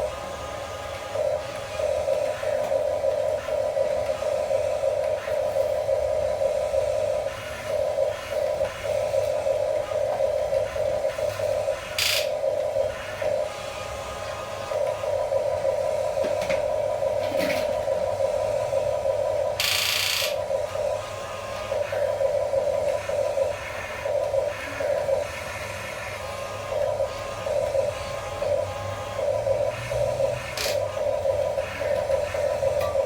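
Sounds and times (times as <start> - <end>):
small electric motors whining: 12.9 - 33.0.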